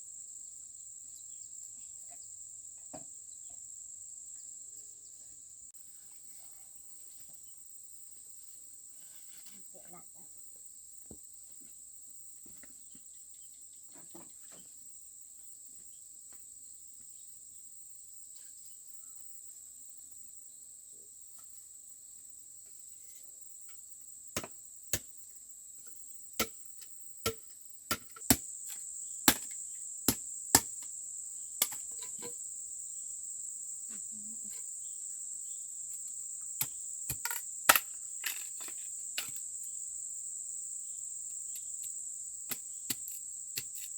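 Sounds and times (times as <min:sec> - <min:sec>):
insects droning: 0:00.0 - 0:43.9.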